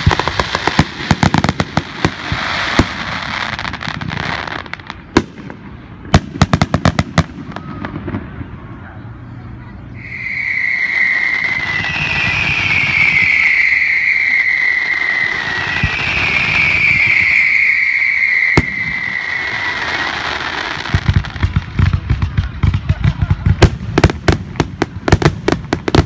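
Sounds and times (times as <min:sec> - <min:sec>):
fireworks whistling: 0:00.0 - 0:08.8, 0:09.9 - 0:26.0
firework bang: 0:10.0 - 0:26.0.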